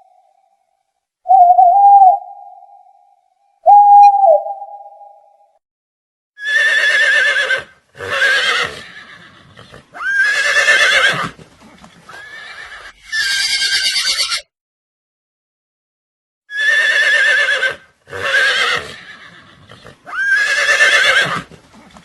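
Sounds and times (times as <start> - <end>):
animal quavering cry: 6.4 - 11.3, 16.5 - 21.5.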